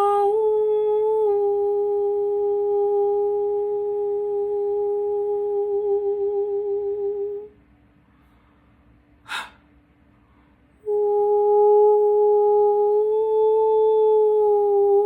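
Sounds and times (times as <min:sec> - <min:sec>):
woman humming a steady tone: 0:00.0 - 0:07.6, 0:09.3 - 0:09.6, 0:10.8 - 0:15.0
quick intake of breath: 0:08.0 - 0:10.6.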